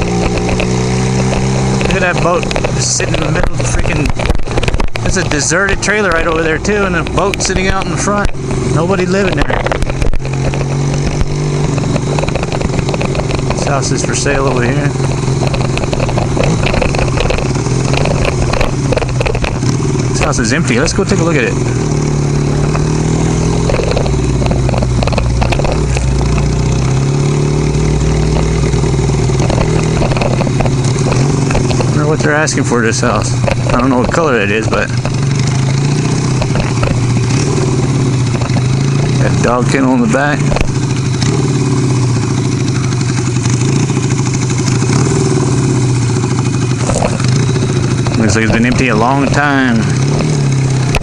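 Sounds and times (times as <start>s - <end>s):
motorcycle engine running: 0.0s - 51.0s
light clicks and rattles: 9.2s - 21.2s.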